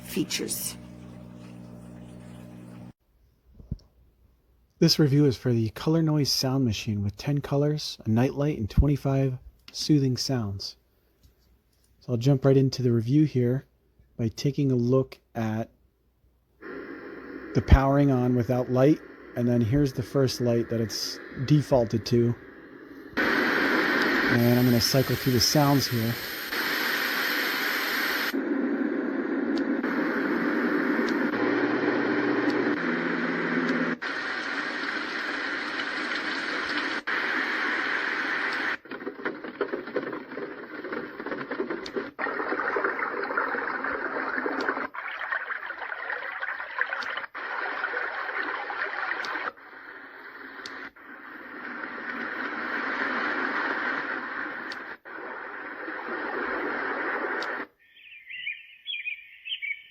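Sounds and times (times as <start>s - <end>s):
sound machine white noise hiss: 16.6s - 42.2s.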